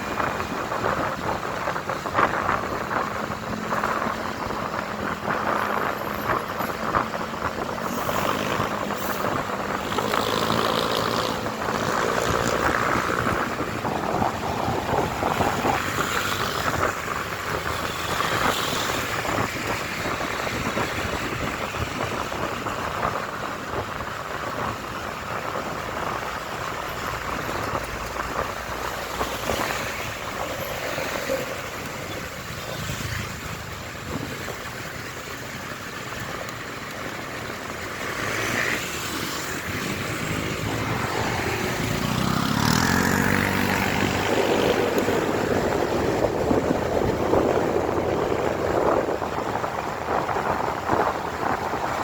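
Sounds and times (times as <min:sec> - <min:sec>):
road noise: 0:00.0 - 0:52.0
wind rushing over microphone: 0:00.0 - 0:52.0
motorcycle engine: 0:03.1 - 0:22.4, 0:27.3 - 0:48.1.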